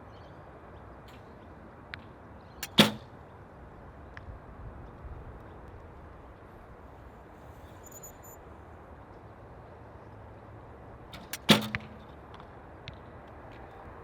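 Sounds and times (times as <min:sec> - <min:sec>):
wind noise on microphone: 0:04.2 - 0:06.8.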